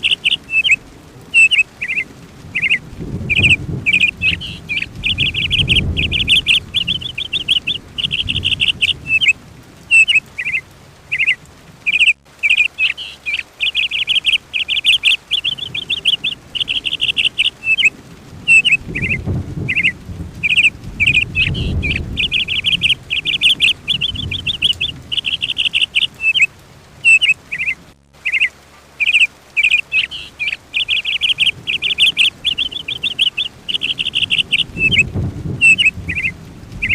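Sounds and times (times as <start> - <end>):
songbird trilling: 0.0 - 17.9, 18.5 - 36.9
soft low rumble: 2.5 - 11.9, 15.3 - 27.0, 30.5 - 36.9.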